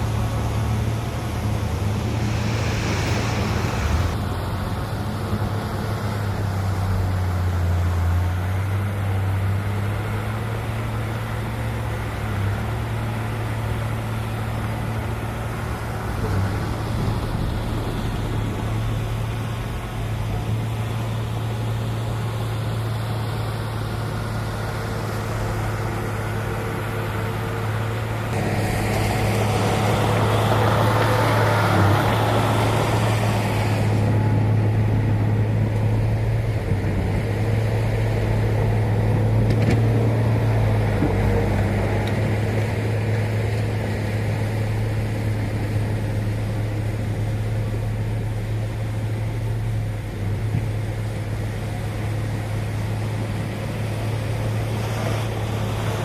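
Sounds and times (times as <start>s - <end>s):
rush of moving stone: 0.0s - 4.2s
heavy machinery engine running: 0.0s - 6.3s, 7.6s - 56.0s.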